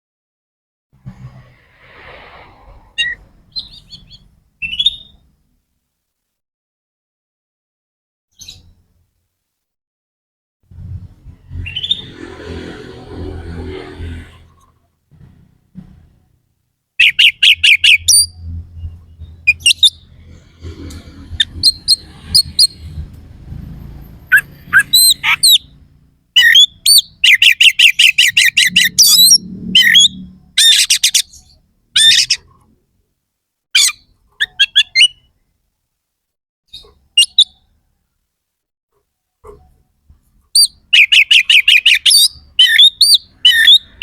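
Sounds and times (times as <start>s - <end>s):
low rumble: 1.0s - 4.5s, 10.7s - 14.6s, 18.2s - 26.2s
bird singing loudly: 17.0s - 18.4s, 24.3s - 25.7s, 26.4s - 32.4s, 33.8s - 35.3s, 40.6s - 44.0s.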